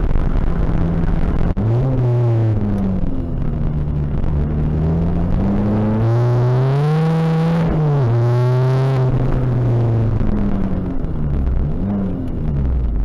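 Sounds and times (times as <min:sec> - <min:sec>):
diesel car engine accelerating: 0:00.0 - 0:13.0.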